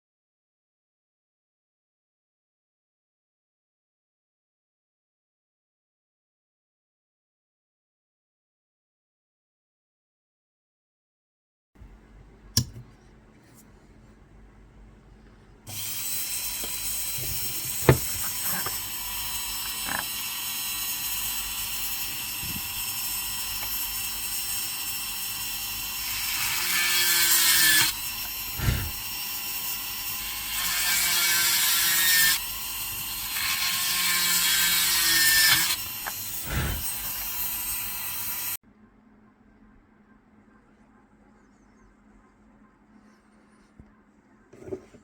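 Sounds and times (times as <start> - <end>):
dental drill whining: 15.7 - 38.6.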